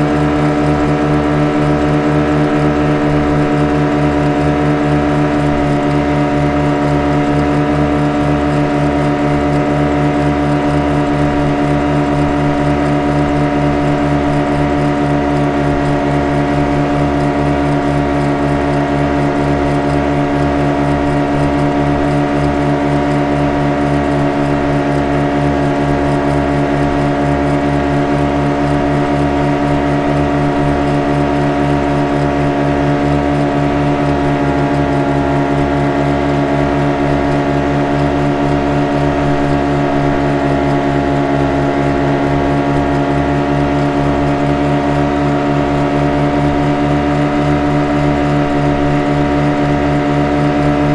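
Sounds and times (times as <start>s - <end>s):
motorboat engine running: 0.0s - 50.9s.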